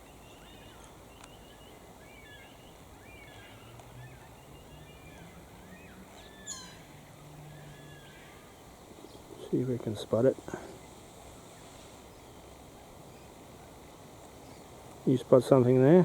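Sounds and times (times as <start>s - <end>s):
loud downward sweeping bird call: 0.0s - 8.7s
wild birds chirping: 0.0s - 16.0s.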